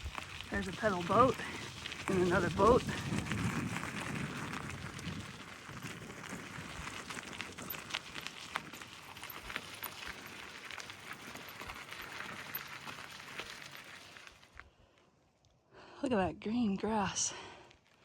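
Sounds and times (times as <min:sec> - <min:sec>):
bike tyres rolling on gravel: 0:00.0 - 0:15.2, 0:17.4 - 0:18.0.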